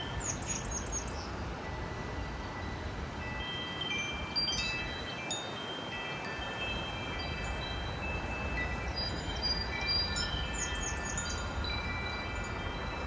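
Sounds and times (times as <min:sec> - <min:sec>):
wind chimes ringing: 0:02.6 - 0:13.0.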